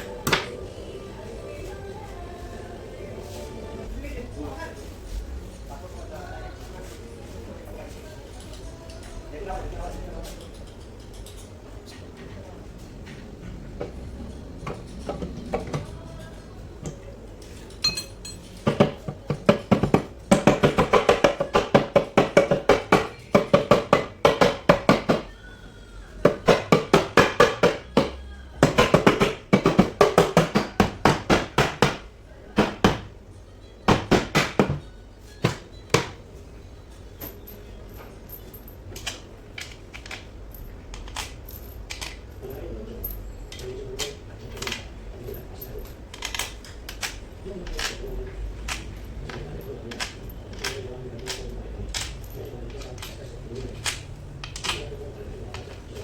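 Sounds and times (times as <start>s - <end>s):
tools clicking on metal: 10.2s - 12.0s, 37.2s - 56.0s.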